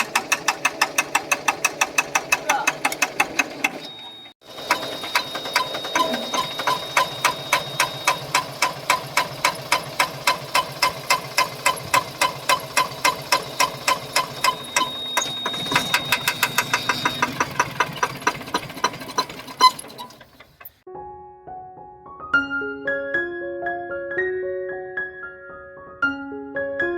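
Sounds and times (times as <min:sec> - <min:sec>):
diesel engine knocking: 0:00.0 - 0:03.9, 0:04.5 - 0:20.8.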